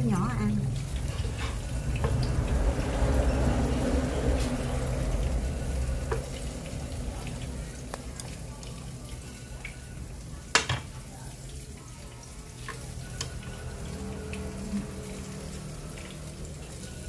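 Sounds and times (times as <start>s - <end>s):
battered slices sizzling in oil: 0.0s - 17.0s.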